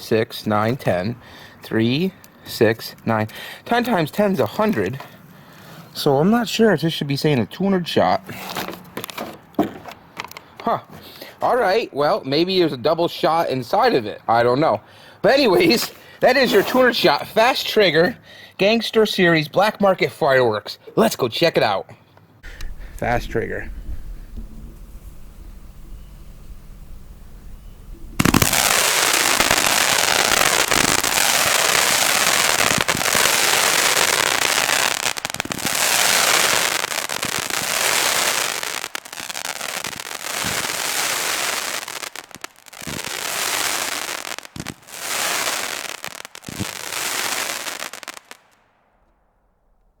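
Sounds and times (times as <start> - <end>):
firework cake shots and crackling: 27.9 - 48.6.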